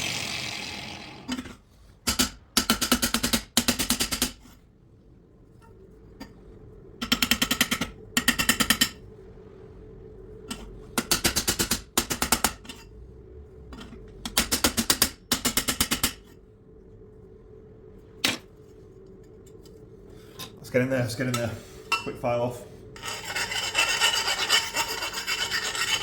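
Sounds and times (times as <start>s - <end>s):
metal file rasping on metal tube: 23.0s - 26.0s.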